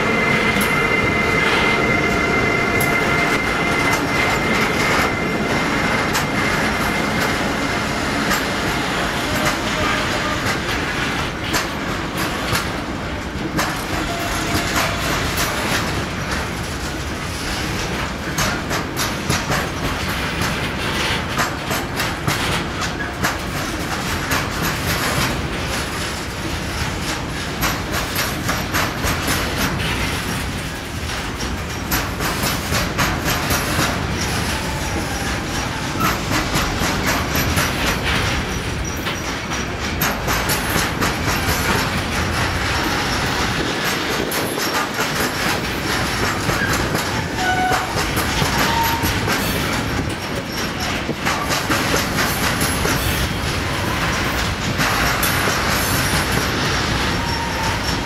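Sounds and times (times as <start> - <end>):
train wheels clattering over rail joints: 0.0 - 58.0
high wheel squeals: 57.1 - 58.0.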